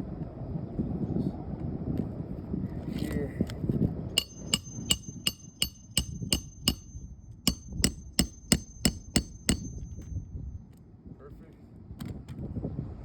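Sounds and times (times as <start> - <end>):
hammer driving nails: 4.2 - 10.2.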